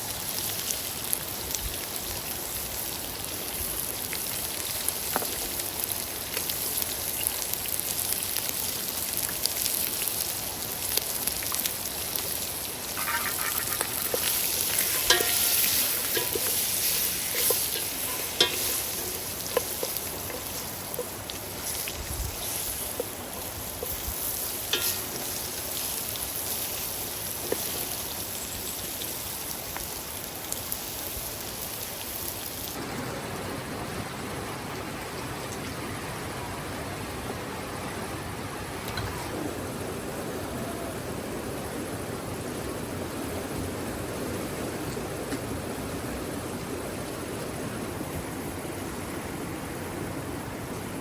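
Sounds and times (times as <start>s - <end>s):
food sizzling in a pan: 0.0s - 32.8s.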